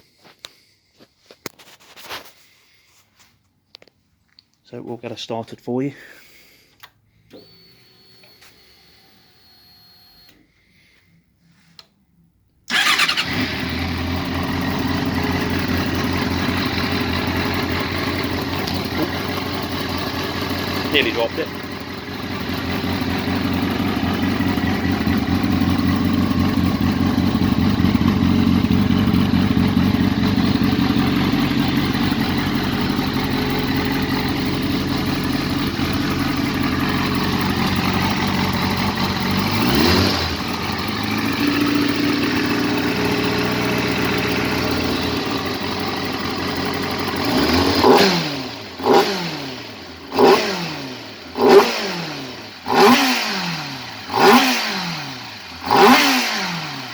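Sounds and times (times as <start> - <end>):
motorcycle engine idling: 12.7 - 56.9
motorcycle engine revving: 12.7 - 56.9.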